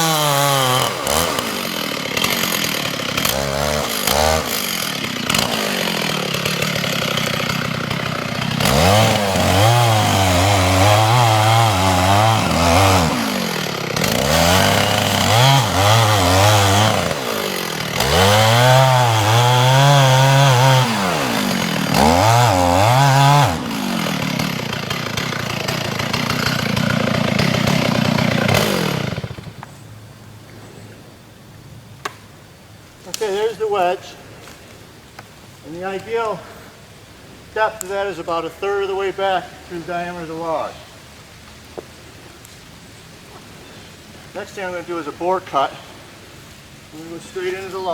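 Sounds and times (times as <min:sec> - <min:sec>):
chainsaw cutting wood: 0:00.0 - 0:29.8, 0:33.0 - 0:34.6, 0:37.5 - 0:40.8, 0:44.2 - 0:46.2, 0:46.9 - 0:47.9.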